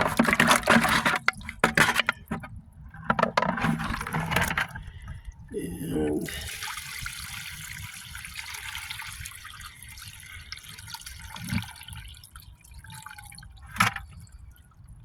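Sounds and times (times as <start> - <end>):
water sloshing in a pan: 0.0 - 5.1, 6.2 - 14.8.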